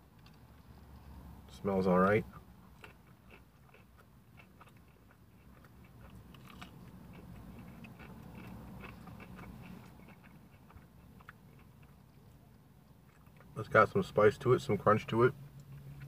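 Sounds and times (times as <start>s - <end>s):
chewing crunchy food: 2.0s - 14.0s, 15.4s - 16.0s.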